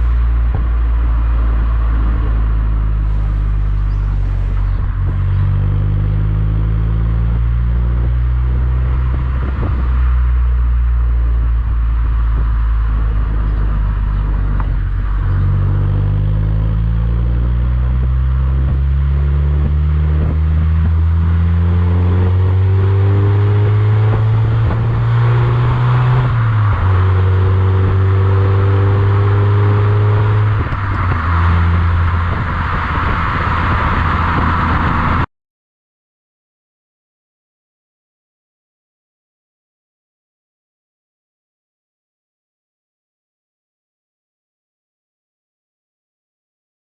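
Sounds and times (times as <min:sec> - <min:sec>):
car engine while driving: 0:00.0 - 0:35.3
road noise: 0:00.0 - 0:35.3.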